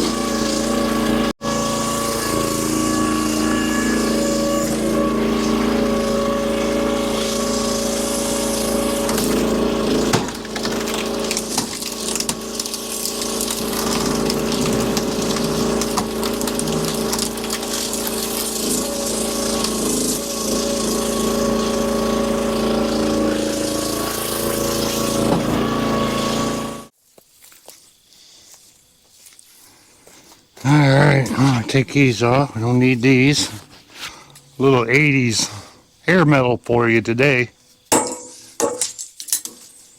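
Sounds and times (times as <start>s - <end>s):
firewood processor engine: 0.0s - 26.9s, 30.0s - 37.4s
wood cracking and knocking: 10.0s - 18.5s.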